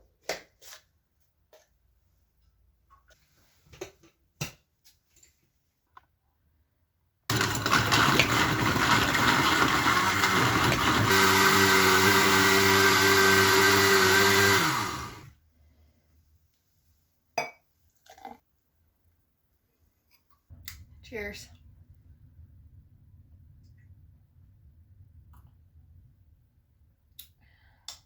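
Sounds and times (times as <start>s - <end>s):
blender running: 7.3s - 15.3s.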